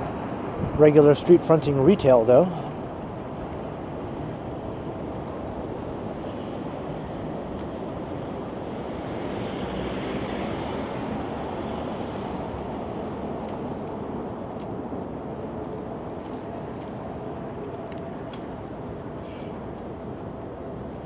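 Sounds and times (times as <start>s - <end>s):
strong wind rushing: 0.0s - 1.2s
street traffic: 0.0s - 21.0s.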